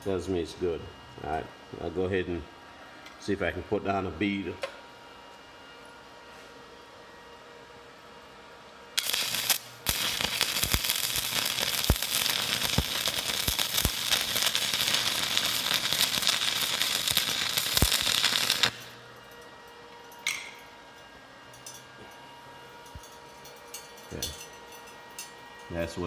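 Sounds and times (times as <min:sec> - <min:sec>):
welding arc crackling: 0:09.0 - 0:19.0.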